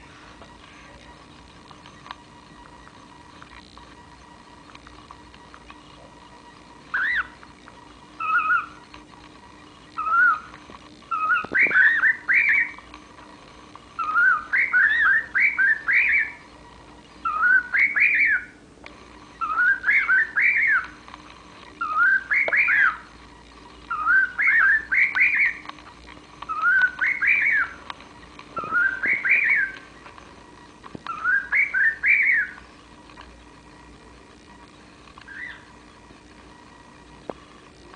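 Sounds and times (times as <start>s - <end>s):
cockatiel whistling: 6.9s - 7.4s, 8.2s - 8.8s, 10.0s - 10.5s, 11.1s - 12.8s, 14.0s - 16.4s, 17.2s - 18.6s, 19.4s - 21.0s, 21.8s - 23.0s, 23.9s - 25.6s, 26.5s - 27.8s, 28.6s - 29.9s, 31.1s - 32.6s, 35.3s - 35.7s.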